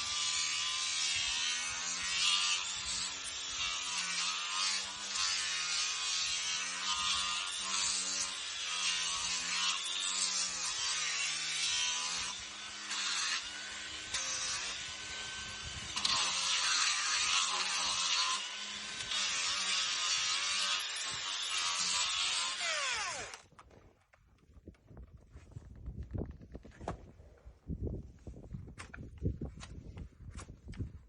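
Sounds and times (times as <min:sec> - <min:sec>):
electric power tool buzzing: 0:00.0 - 0:23.6.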